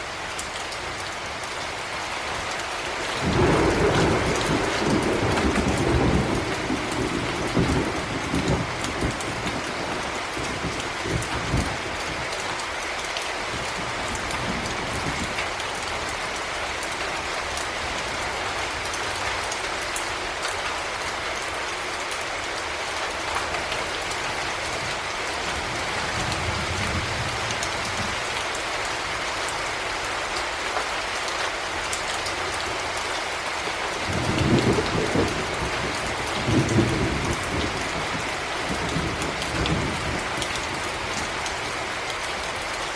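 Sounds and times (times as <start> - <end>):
heavy rain hissing: 0.0 - 30.6
thunder rumbling: 3.2 - 11.9, 34.1 - 41.1.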